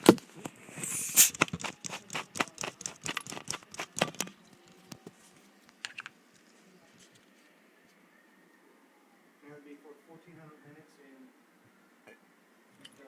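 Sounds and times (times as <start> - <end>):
objects clicking and knocking: 0.0 - 5.1.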